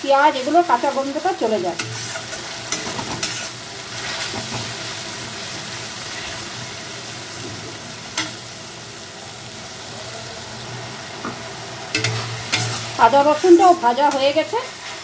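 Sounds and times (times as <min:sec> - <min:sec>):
paste sizzling in hot oil: 0:00.0 - 0:15.0
spatula scraping pan: 0:01.0 - 0:04.8, 0:11.9 - 0:15.0.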